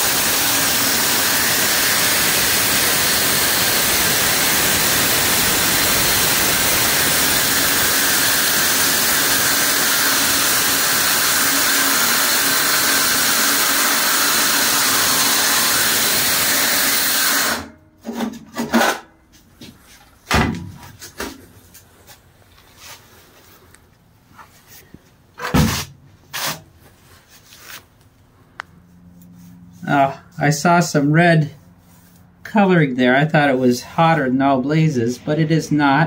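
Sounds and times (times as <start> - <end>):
saw cutting through steel plate: 0.0 - 17.7.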